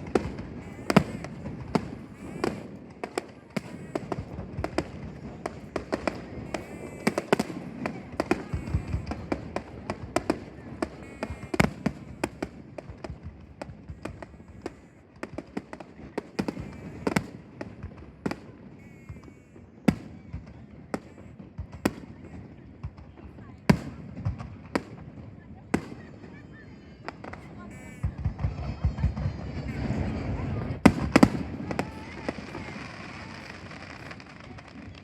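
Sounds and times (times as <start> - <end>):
firework shells bursting: 0.0 - 23.1.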